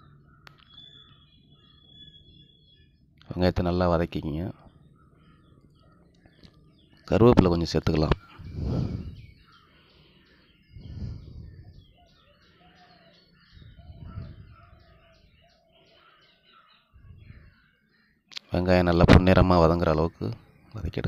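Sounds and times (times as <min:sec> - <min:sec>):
bird call: 0:00.0 - 0:03.0, 0:08.0 - 0:18.4
small birds chirping: 0:00.0 - 0:21.0
low rushing noise: 0:08.2 - 0:09.4.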